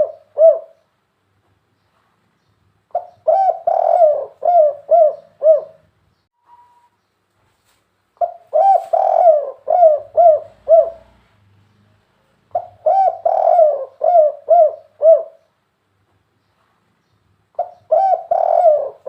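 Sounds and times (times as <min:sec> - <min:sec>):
dove cooing: 0:00.0 - 0:00.9, 0:02.9 - 0:05.9, 0:08.2 - 0:11.3, 0:12.5 - 0:15.5, 0:17.6 - 0:19.0.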